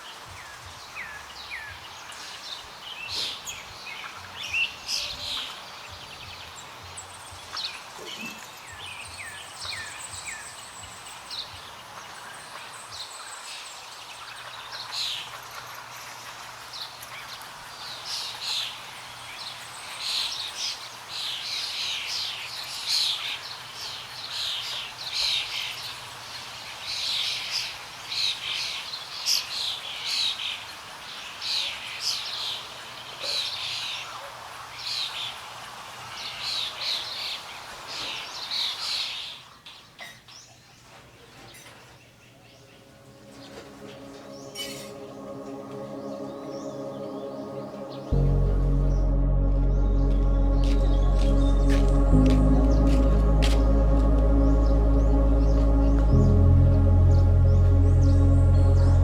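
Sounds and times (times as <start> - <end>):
wild birds chirping: 42.2 - 59.0.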